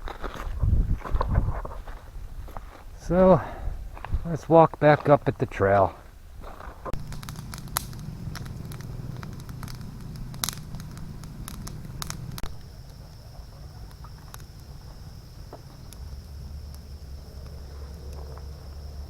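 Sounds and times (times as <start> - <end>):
footsteps on twigs and leaves: 0.0 - 3.0, 3.9 - 12.6
high insect buzz: 6.9 - 19.0.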